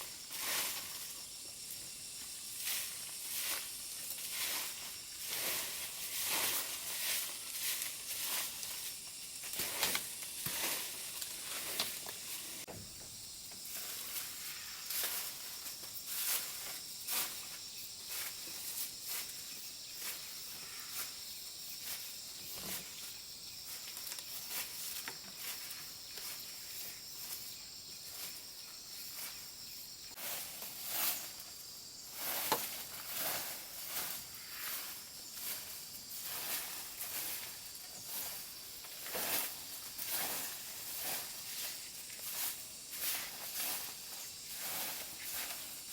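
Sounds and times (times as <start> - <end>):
high-pitched insect buzz: 0.0 - 30.2
rustling and crackling handling noise: 2.6 - 12.7.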